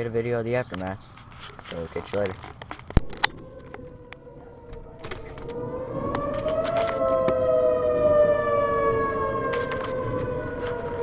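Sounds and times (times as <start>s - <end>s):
warning siren wailing: 3.0s - 11.0s.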